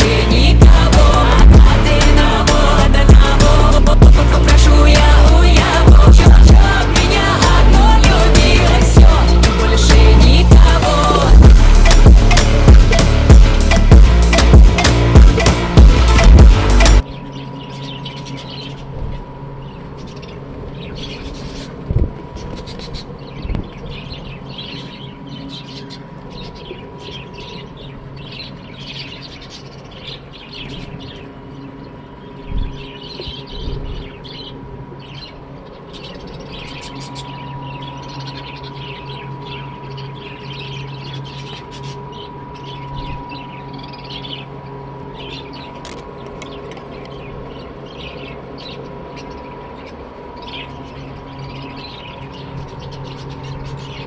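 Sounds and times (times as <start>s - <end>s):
steady background hum: 0.0s - 54.0s
low thumps: 7.8s - 17.0s
budgerigars chirping: 11.8s - 54.0s.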